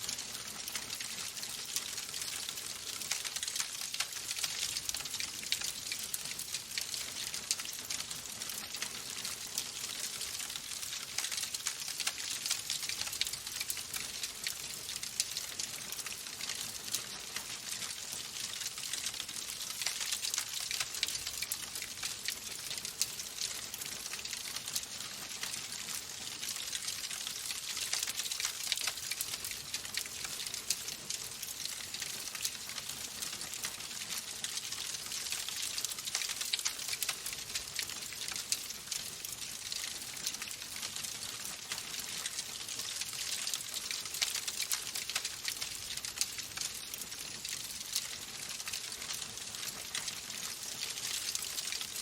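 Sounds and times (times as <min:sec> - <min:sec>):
wood fire crackling: 0:00.1 - 0:52.0.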